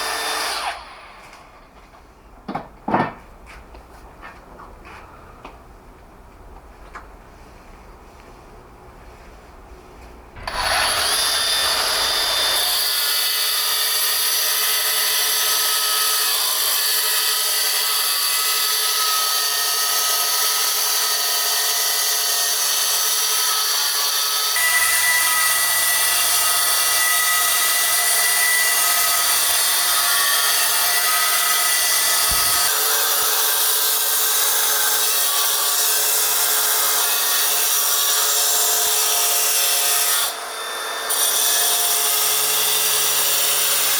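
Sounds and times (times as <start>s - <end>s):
power tool grinding stone: 10.4s - 43.9s.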